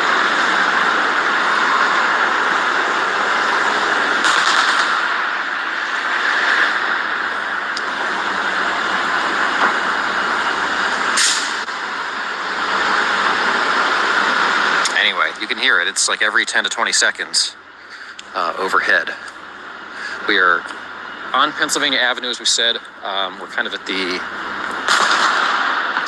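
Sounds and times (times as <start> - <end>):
noisy hiss and rumble: 0.0 - 26.0
sharp booming bangs: 4.2 - 5.3, 24.8 - 26.0.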